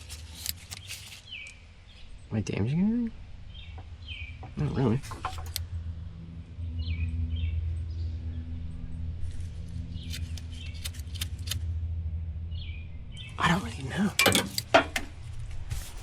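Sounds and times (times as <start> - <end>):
steady low hum: 0.0 - 16.0
sharp clicks: 5.0 - 5.7, 10.0 - 11.6.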